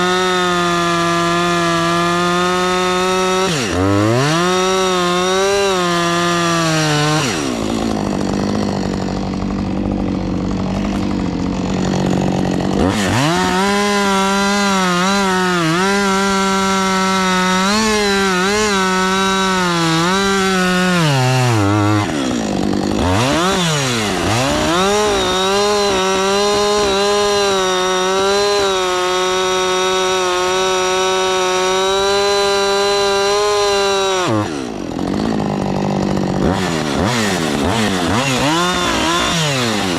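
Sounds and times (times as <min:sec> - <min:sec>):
engine revving and idling: 0:00.0 - 0:39.9.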